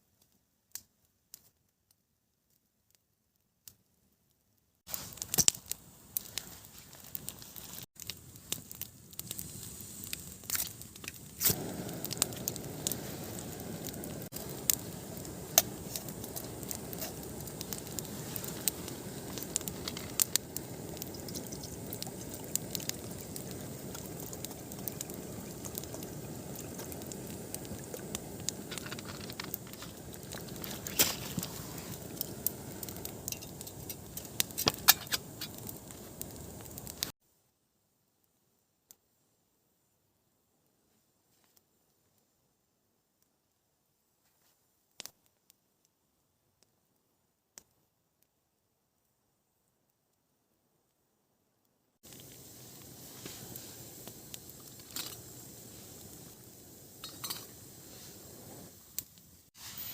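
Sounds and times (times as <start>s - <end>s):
campfire crackling and popping: 4.9s - 37.2s, 44.9s - 46.0s, 47.6s - 48.3s, 52.0s - 59.9s.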